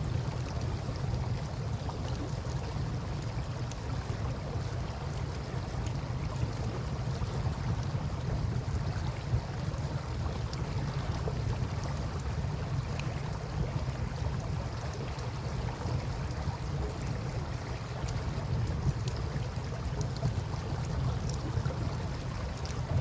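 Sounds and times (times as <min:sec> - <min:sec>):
river water lapping and flowing: 0:00.0 - 0:23.0
campfire crackles and pops: 0:00.1 - 0:23.0.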